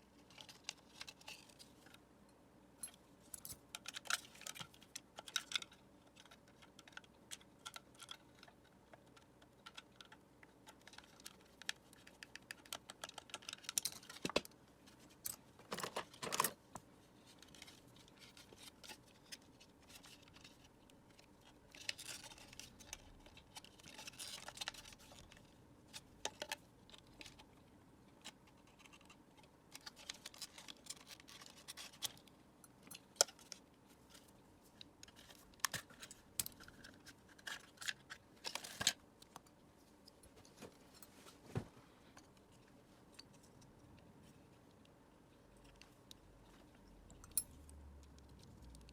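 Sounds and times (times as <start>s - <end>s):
plastic parts clicking and tapping: 2.8s - 14.6s, 15.2s - 27.5s.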